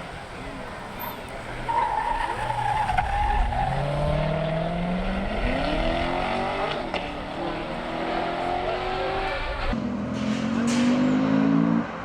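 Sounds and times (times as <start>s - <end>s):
car engine accelerating hard: 2.6s - 12.0s.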